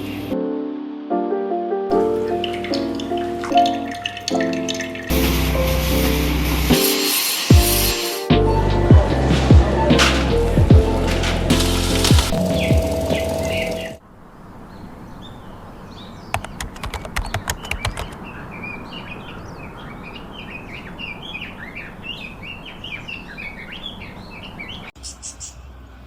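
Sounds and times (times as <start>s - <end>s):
small birds chirping: 2.0s - 5.3s, 12.2s - 26.0s
sharp clicks: 16.3s - 18.2s.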